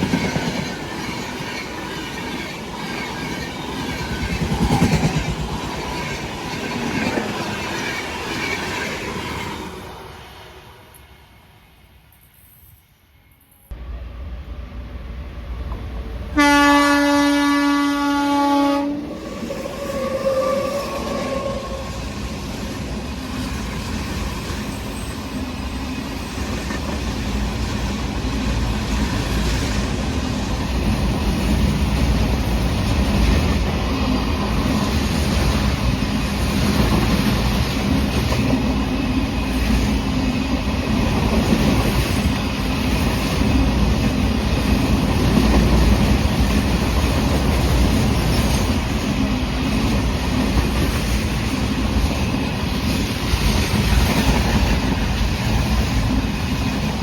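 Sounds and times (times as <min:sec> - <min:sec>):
train wagons rumbling on rails: 0:00.0 - 0:10.0, 0:13.7 - 0:57.0
locomotive horn: 0:16.3 - 0:19.2, 0:19.8 - 0:22.0.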